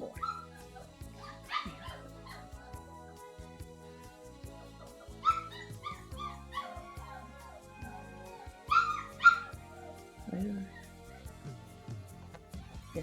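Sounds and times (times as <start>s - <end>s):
puppy whimpering and yelping: 0.0s - 2.8s, 5.2s - 10.8s
background music: 0.0s - 13.0s.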